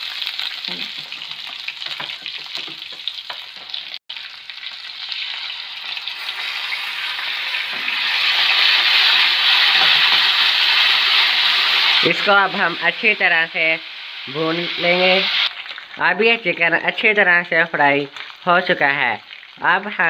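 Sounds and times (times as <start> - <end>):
garlic sizzling in oil: 0.0 - 20.0.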